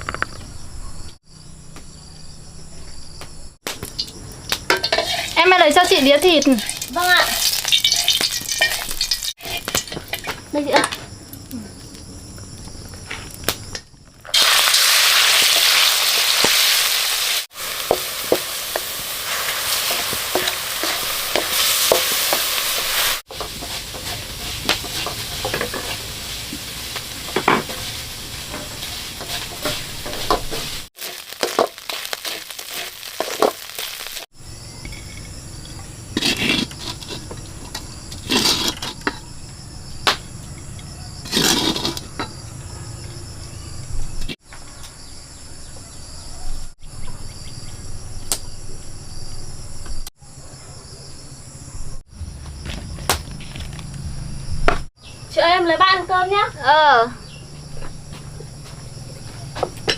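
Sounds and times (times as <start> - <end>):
stirring clinks and scrapes: 4.7 - 5.5, 6.3 - 10.9, 19.7 - 33.9, 34.8 - 39.3, 41.2 - 42.3
meat sizzling in a pan: 4.9 - 10.3, 14.3 - 34.3.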